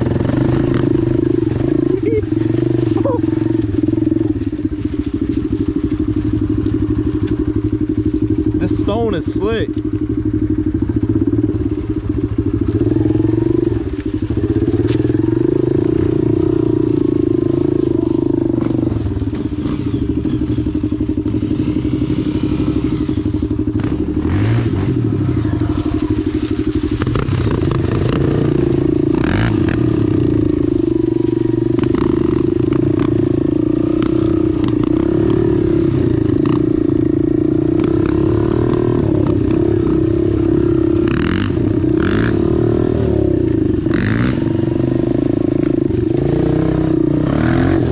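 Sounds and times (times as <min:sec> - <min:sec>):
stones clacking under wheels: 0:00.0 - 0:08.7, 0:23.1 - 0:34.9
dirt bike engine running: 0:00.0 - 0:47.9.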